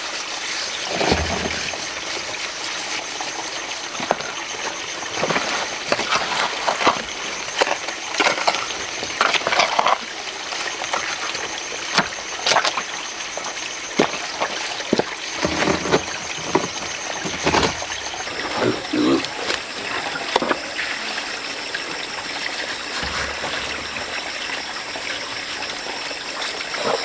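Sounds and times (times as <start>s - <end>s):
running water: 0.0s - 27.0s
hand tool digging in wet sand: 15.3s - 18.4s.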